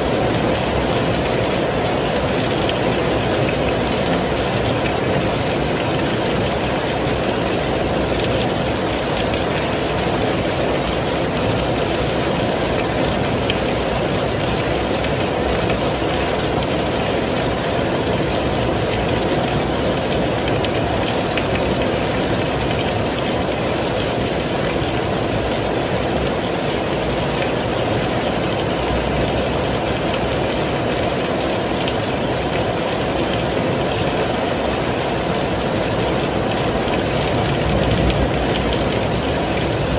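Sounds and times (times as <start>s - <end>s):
heavy rain: 0.0s - 39.9s
raindrop ticks: 18.3s - 22.8s.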